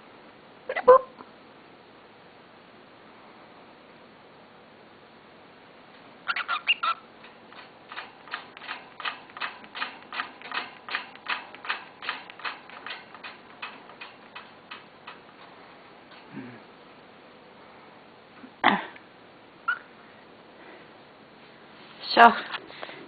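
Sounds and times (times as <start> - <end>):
bird pecking with sharp taps: 7.2 - 15.5.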